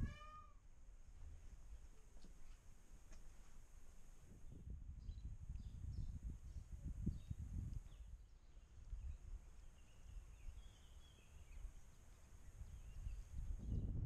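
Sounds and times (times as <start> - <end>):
wind rumble on microphone: 0.0 - 0.3, 4.1 - 14.0
small birds chirping: 5.0 - 13.9.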